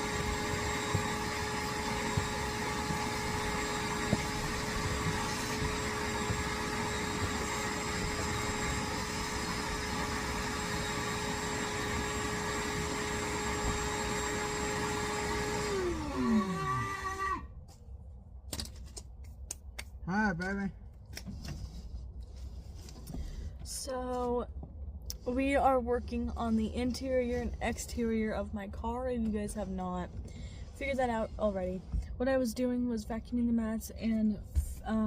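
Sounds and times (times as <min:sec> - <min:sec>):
vacuum cleaner running: 0:00.0 - 0:17.5.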